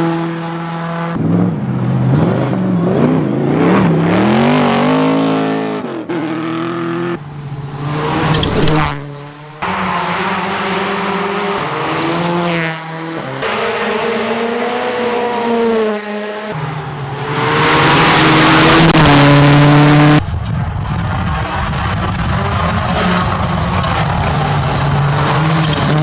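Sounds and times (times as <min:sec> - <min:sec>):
rally car engines revving: 0:00.0 - 0:26.0
car passing close: 0:07.2 - 0:16.8, 0:17.4 - 0:26.0.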